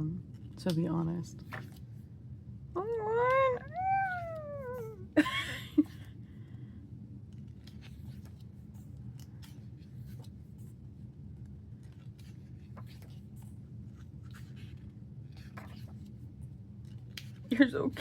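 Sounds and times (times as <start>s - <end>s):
steady low hum: 0.0s - 18.0s
rustles of cards and pages: 0.3s - 2.1s, 7.2s - 18.0s.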